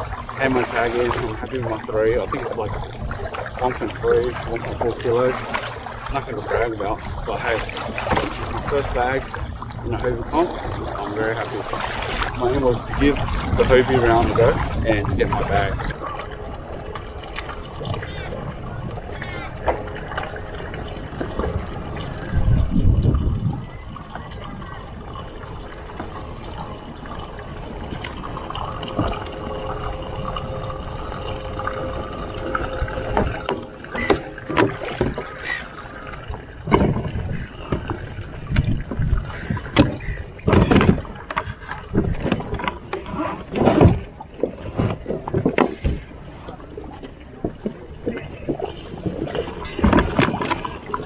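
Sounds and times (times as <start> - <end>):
irregular splashes and knocks: 0.0 - 15.9, 25.7 - 46.5, 47.4 - 51.0
wind noise: 0.0 - 46.5
water noise: 0.0 - 51.0.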